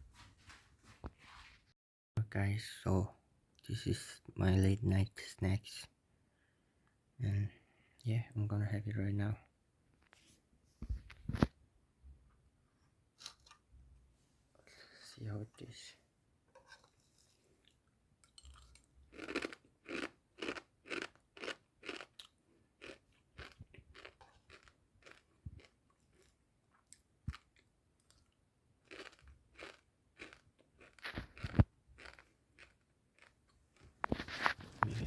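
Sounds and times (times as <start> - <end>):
chewing crunchy snack: 17.6 - 35.0.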